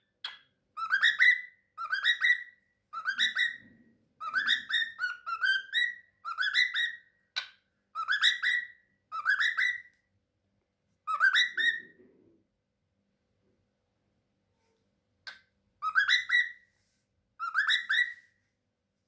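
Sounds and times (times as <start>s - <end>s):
cockatiel whistling: 0.2s - 9.9s, 11.1s - 12.0s, 15.3s - 16.7s, 17.4s - 18.3s.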